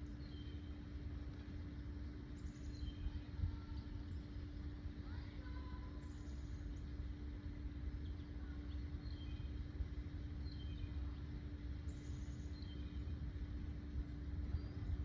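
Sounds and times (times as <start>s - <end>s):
constant hum: 0.0s - 15.0s
faint bird chirps: 2.4s - 4.4s, 8.0s - 9.7s, 10.4s - 13.2s.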